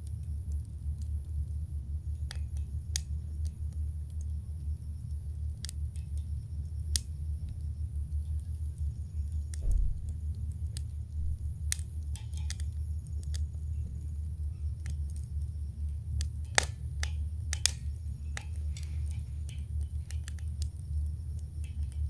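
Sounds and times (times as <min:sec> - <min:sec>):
campfire crackling: 0:00.0 - 0:22.0
fire pops and snaps: 0:00.0 - 0:22.0.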